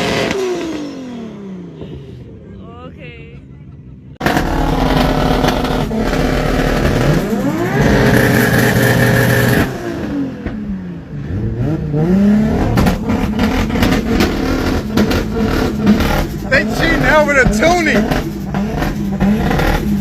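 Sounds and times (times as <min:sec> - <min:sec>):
car engine revving: 0:04.2 - 0:20.0.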